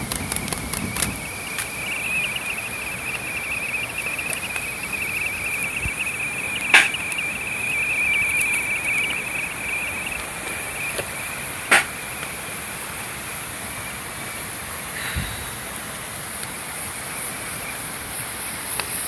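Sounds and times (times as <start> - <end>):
wood fire crackling: 0.0 - 13.4
kettle whistling: 0.0 - 14.0, 15.8 - 19.0
hiss: 0.0 - 19.0.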